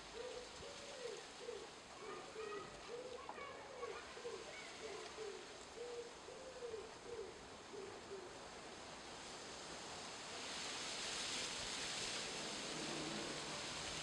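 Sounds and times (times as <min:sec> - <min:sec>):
pigeon cooing: 0:00.2 - 0:08.3
loud steady hiss: 0:07.6 - 0:14.0.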